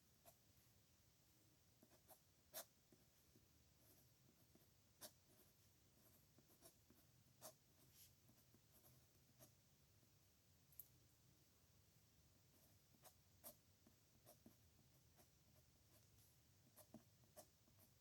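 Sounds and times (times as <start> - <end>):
pen scratching on paper: 1.8 - 3.1, 3.8 - 9.6, 12.5 - 18.0.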